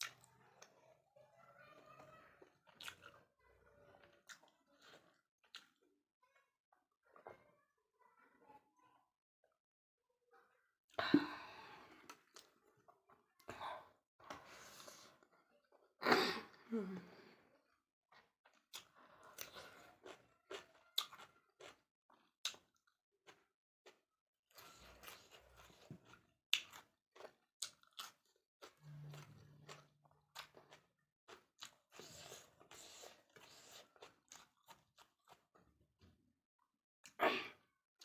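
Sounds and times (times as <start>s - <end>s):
chewing with wet smacks: 2.4s - 5.9s, 18.1s - 35.6s.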